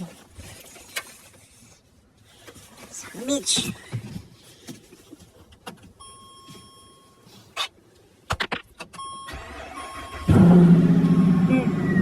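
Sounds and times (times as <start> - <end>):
car electronic warning beep: 6.0 - 7.3, 9.0 - 12.0.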